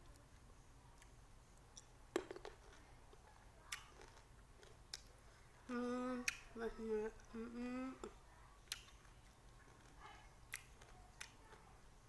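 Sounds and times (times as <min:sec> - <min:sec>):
woman humming: 0:05.7 - 0:08.1.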